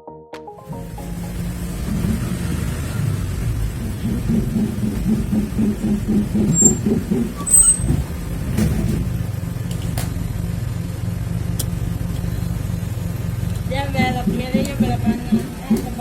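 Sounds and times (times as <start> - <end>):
car interior drone: 0.8 - 16.0.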